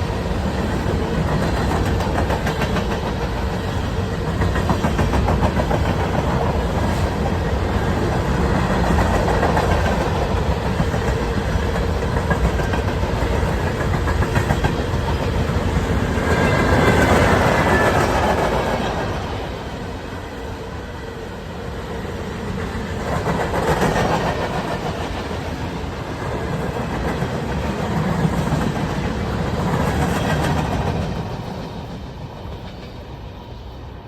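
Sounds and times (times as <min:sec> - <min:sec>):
train rumbling past: 0:00.0 - 0:34.0
wheels clicking over rail joints: 0:00.5 - 0:19.4.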